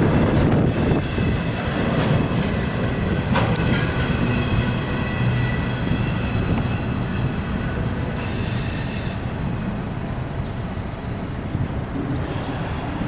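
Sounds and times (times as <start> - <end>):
freight train wheels rumbling: 0.0 - 13.0
high squealing of wheels: 0.7 - 9.4.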